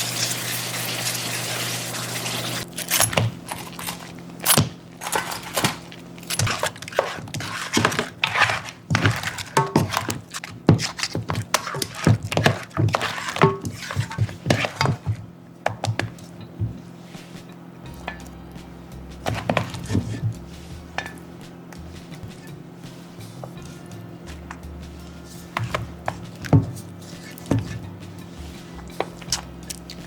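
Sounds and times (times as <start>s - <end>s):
dishes and utensils clinking: 2.6s - 18.4s, 19.2s - 22.6s, 25.2s - 30.0s.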